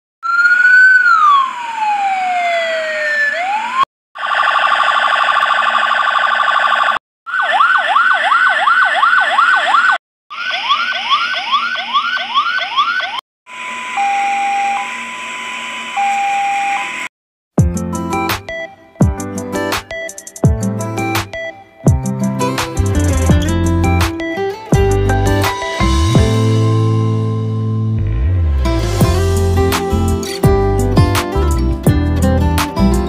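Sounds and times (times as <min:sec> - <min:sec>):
electronic siren wailing and yelping: 0:00.2 - 0:17.1.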